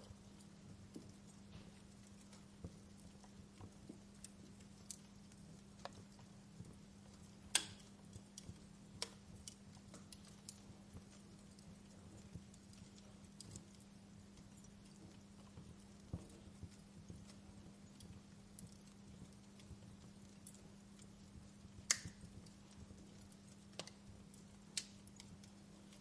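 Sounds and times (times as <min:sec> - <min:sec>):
faint low hum: 0:00.0 - 0:26.0
wood fire crackling: 0:00.0 - 0:26.0.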